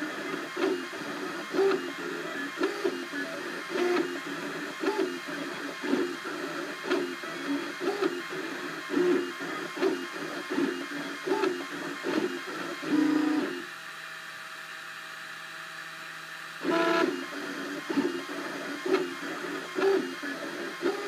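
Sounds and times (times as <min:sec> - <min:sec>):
printer stepper motors whirring: 0:00.0 - 0:21.0.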